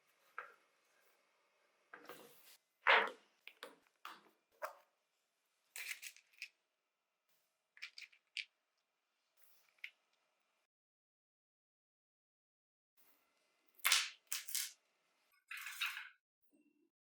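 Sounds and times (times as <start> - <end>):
light scraping of small parts: 5.7 - 6.6, 7.8 - 8.5, 15.5 - 16.2.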